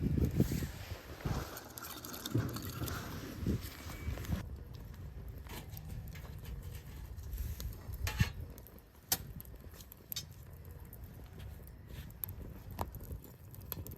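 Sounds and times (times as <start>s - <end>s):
low fire rumble: 0.0s - 13.9s
wood fire crackling and popping: 0.0s - 13.9s.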